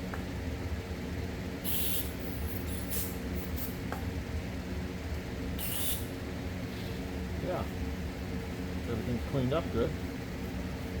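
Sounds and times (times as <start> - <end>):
hissing spray bursts: 1.6 - 3.8.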